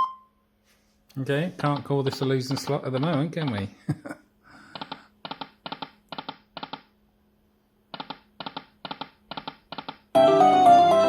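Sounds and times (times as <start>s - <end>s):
faint machine hum: 0.0s - 10.4s.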